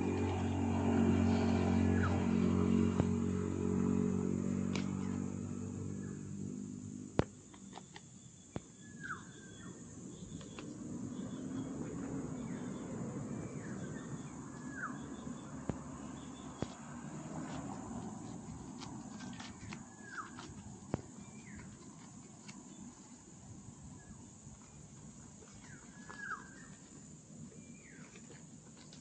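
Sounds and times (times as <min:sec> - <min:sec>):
vehicle engine running: 0:00.0 - 0:07.9, 0:09.0 - 0:29.0
bird chirps: 0:07.3 - 0:16.8, 0:24.0 - 0:28.4.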